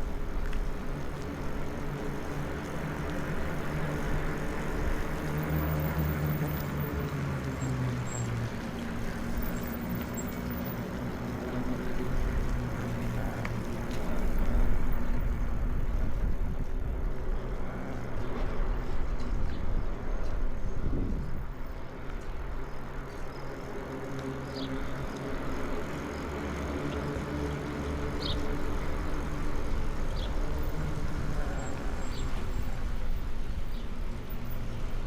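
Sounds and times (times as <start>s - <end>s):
low engine-like hum: 0.0s - 35.0s
wind rushing over microphone: 11.0s - 22.6s.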